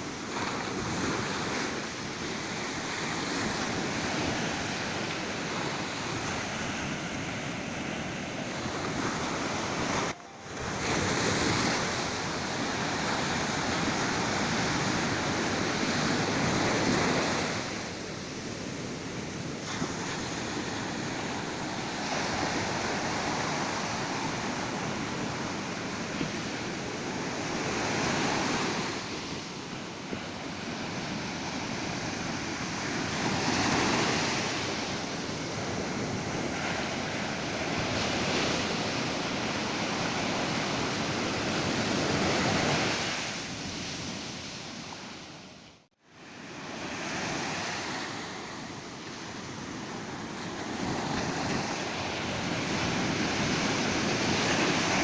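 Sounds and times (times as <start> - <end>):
ocean surf washing onto beach: 0.0 - 55.0.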